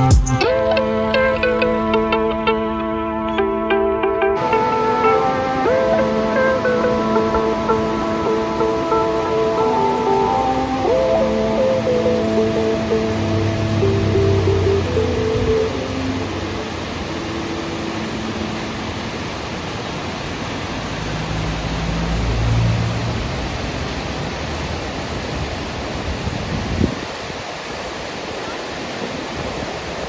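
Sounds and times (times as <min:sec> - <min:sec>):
music: 0:00.0 - 0:16.7
steady rushing noise: 0:04.4 - 0:30.0.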